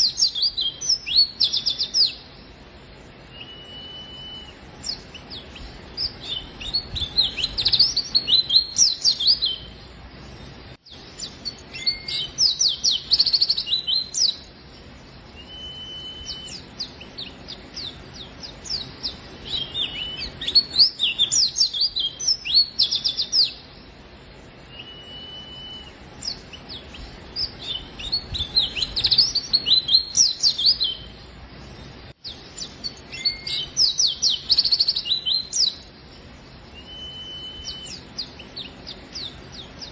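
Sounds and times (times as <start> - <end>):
bird twittering song: 0.0 - 39.9
bird short steady whistle: 3.3 - 4.6, 15.4 - 16.6, 24.7 - 26.0, 36.8 - 38.0.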